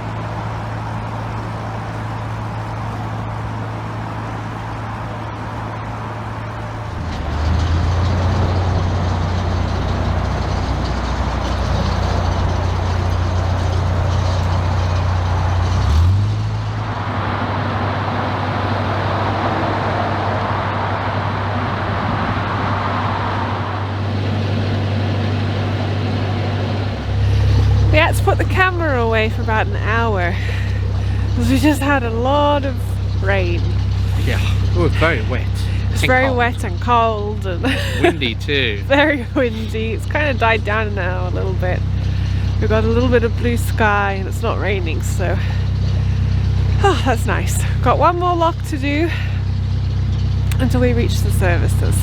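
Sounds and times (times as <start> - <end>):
boat diesel engine running: 0.0 - 52.0.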